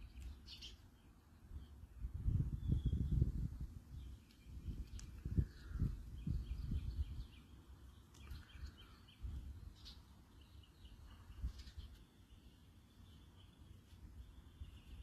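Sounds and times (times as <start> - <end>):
wind rumbling on microphone: 1.4 - 7.4, 8.2 - 10.0, 11.1 - 12.0.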